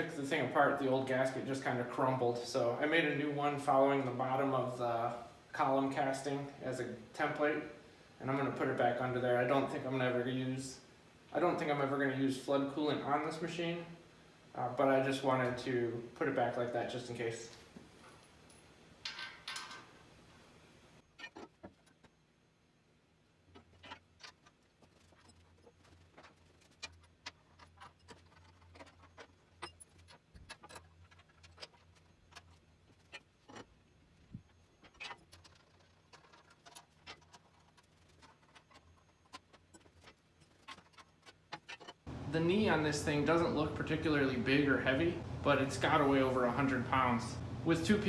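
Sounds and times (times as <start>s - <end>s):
faint low hum: 42.1s - 48.0s.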